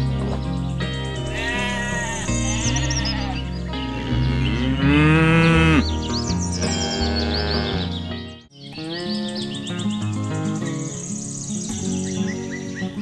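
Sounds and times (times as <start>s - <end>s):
background music: 0.0s - 13.0s
bird chirps: 1.1s - 3.7s
sheep bleating: 1.2s - 5.8s, 6.6s - 8.0s.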